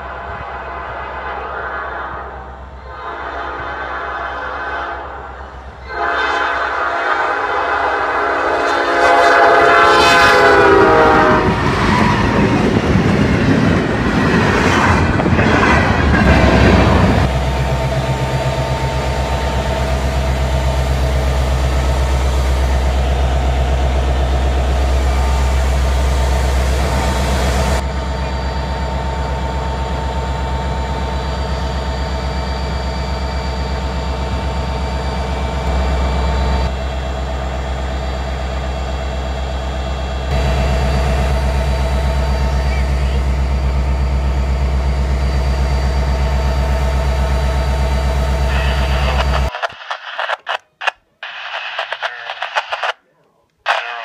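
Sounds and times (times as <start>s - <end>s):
locomotive air horn: 0.0s - 12.1s
train passing with wheel noise: 0.0s - 49.5s
diesel engine drone: 10.2s - 49.5s.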